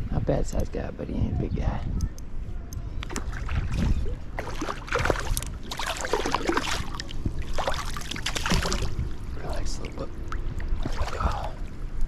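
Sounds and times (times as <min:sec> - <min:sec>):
water splashing from thrashing fish: 0:03.1 - 0:09.1.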